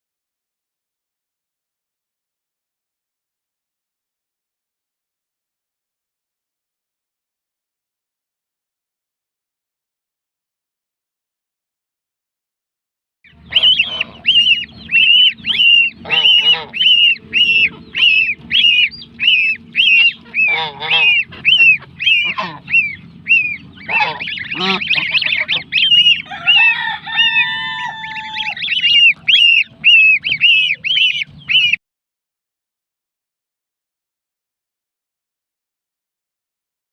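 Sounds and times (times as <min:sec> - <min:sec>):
chicks peeping loudly: 0:13.3 - 0:31.8
lower rough bird calls: 0:13.3 - 0:31.8.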